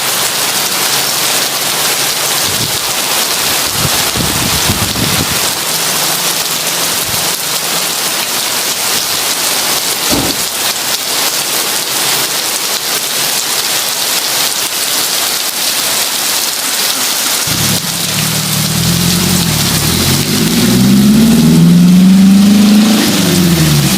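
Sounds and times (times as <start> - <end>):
heavy rain falling: 0.0 - 23.9
low thump: 10.1 - 10.4
low rumble: 17.5 - 22.5.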